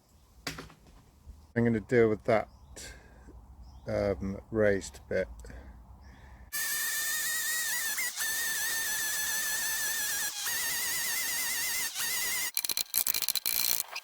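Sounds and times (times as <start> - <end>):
angle grinder grinding steel: 6.6 - 14.0.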